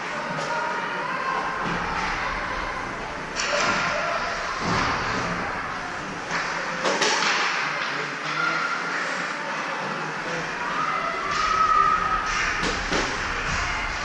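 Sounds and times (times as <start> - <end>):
murmur of voices: 0.0 - 14.0
skating and play noise: 0.0 - 14.0
impacts on rink boards: 3.4 - 9.0.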